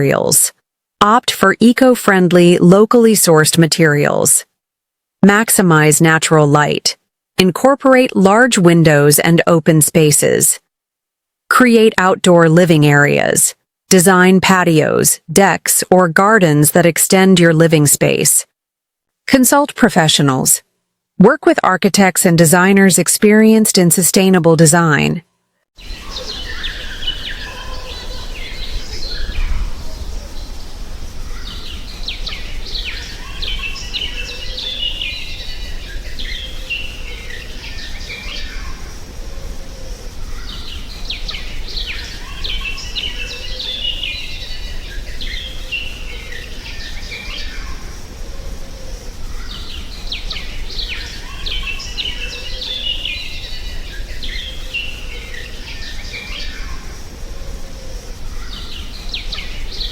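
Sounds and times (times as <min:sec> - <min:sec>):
birds chirping: 0:00.0 - 0:00.5, 0:25.8 - 0:59.9.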